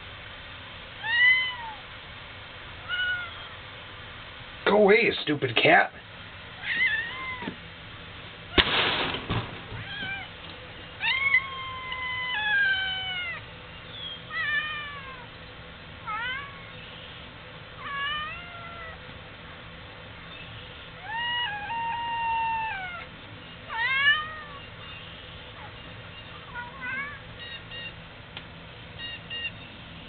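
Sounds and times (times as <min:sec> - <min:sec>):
cat meowing: 0:01.0 - 0:01.8, 0:02.8 - 0:03.6, 0:06.6 - 0:07.6, 0:09.8 - 0:10.4, 0:11.0 - 0:13.4, 0:14.3 - 0:15.3, 0:16.0 - 0:16.8, 0:17.8 - 0:19.0, 0:21.0 - 0:23.1, 0:23.7 - 0:24.7, 0:26.5 - 0:28.0.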